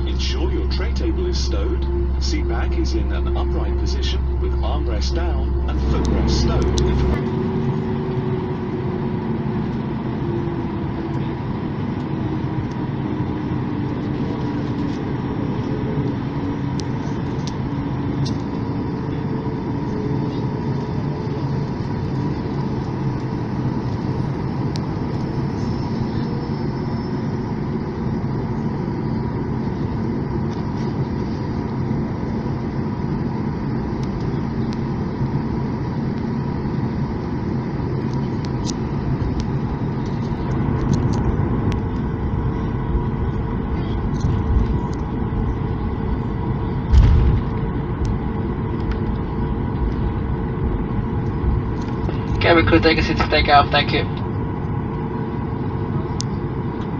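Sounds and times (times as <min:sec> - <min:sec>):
low tone sinking in pitch: 0:00.0 - 0:28.0
engine and air-conditioning hum: 0:00.0 - 0:56.9.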